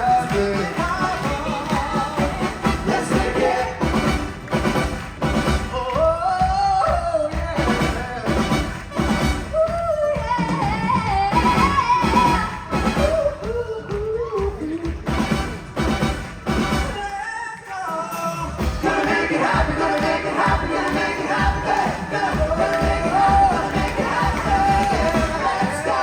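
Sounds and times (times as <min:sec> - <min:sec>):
person singing: 0:00.0 - 0:04.3, 0:17.0 - 0:26.0
pop-rock band playing: 0:00.0 - 0:17.1, 0:18.0 - 0:26.0.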